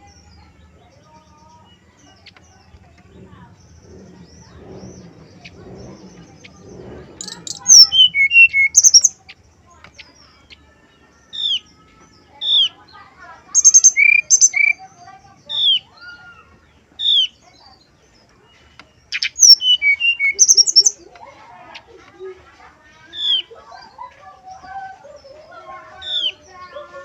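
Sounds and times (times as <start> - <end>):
faint bird chatter: 0.0 - 27.0
bird whistled song: 3.8 - 9.3, 13.5 - 16.4, 19.0 - 21.1.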